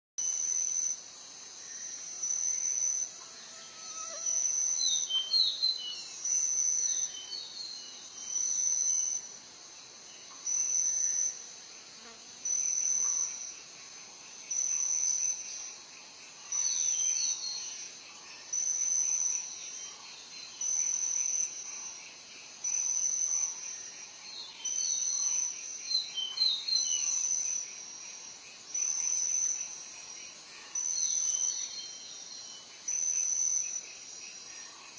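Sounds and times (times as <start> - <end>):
hiss of insects: 0.2 - 34.9
insect shrill trill: 1.6 - 7.1.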